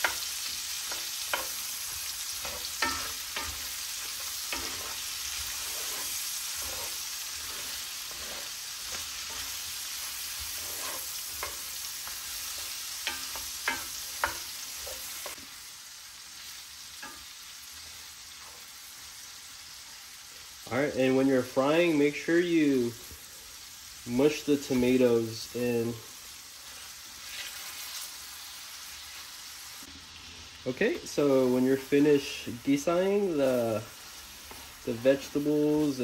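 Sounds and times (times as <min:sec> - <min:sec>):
wooden spoon scraping a pan: 0:00.0 - 0:15.5, 0:17.0 - 0:18.9, 0:26.6 - 0:29.8, 0:31.2 - 0:36.0
food sizzling in oil: 0:00.0 - 0:36.0.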